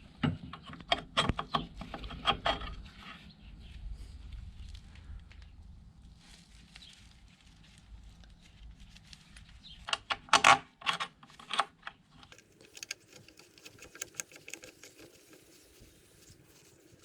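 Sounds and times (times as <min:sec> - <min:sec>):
sharp clicks and knocks: 0:09.9 - 0:17.0
light quick ticking: 0:12.3 - 0:17.0.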